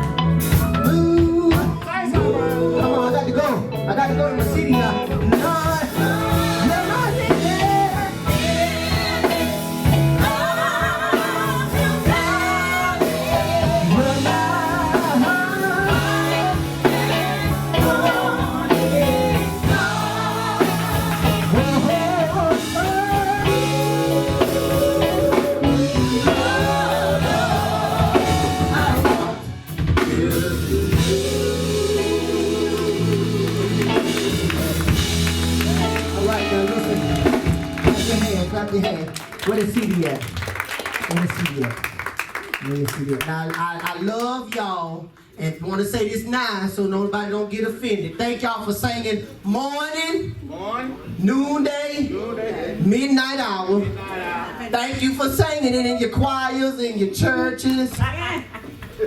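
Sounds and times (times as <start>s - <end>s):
gospel singing with band: 0.0s - 39.8s.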